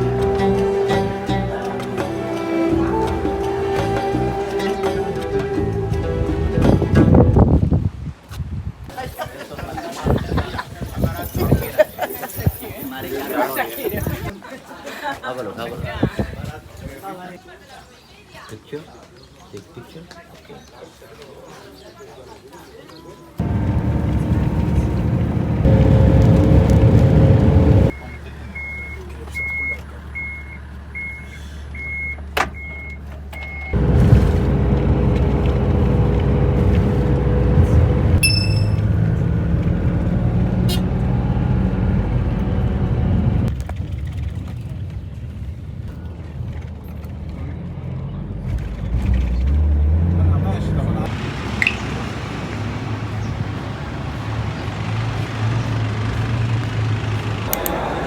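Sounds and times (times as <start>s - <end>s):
vehicle engine rumble: 0.0s - 8.2s, 23.4s - 58.0s
road noise: 0.0s - 14.4s, 23.3s - 58.0s
reversing beeper: 38.2s - 39.1s, 57.5s - 58.0s.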